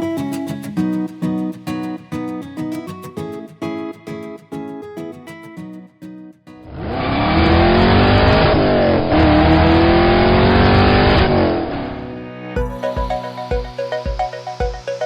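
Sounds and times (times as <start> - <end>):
car engine accelerating: 6.8 - 12.1.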